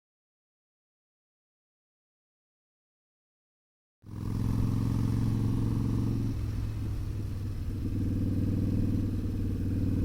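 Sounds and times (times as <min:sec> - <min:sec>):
motorcycle engine running: 0:04.0 - 0:10.0.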